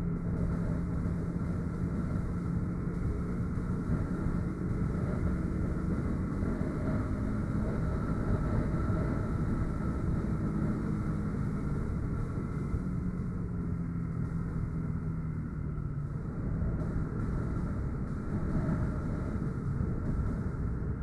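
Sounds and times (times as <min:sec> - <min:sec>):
motorcycle engine running: 0:00.0 - 0:21.0
rushing wind noise: 0:16.1 - 0:21.0.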